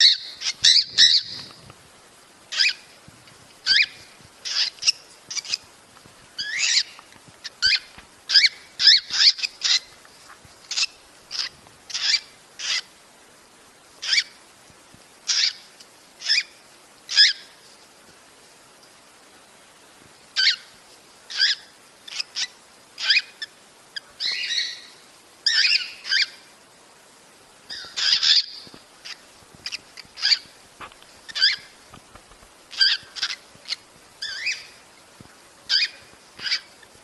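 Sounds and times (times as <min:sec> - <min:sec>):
cockatiel shrill calls: 0:00.0 - 0:01.5, 0:03.6 - 0:05.6, 0:07.6 - 0:09.9, 0:10.7 - 0:12.9, 0:21.3 - 0:23.4, 0:24.2 - 0:26.4, 0:27.7 - 0:30.5, 0:31.3 - 0:31.7, 0:32.7 - 0:34.7, 0:35.7 - 0:36.8.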